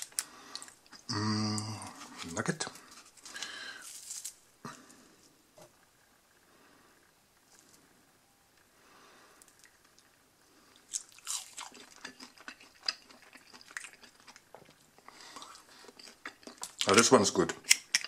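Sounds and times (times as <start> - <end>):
crunching chewing: 0.0 - 5.0, 9.4 - 18.0.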